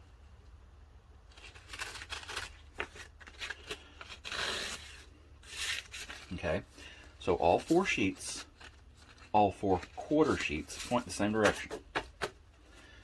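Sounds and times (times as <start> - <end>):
sandpaper tearing: 1.3 - 6.4.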